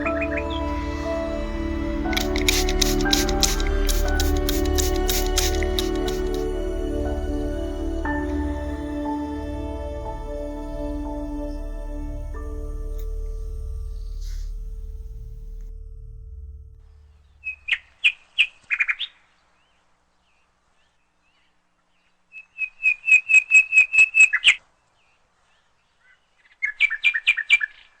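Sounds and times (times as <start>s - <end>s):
songbird chirping: 0.0s - 15.5s, 16.9s - 28.0s
low background music: 0.0s - 17.5s.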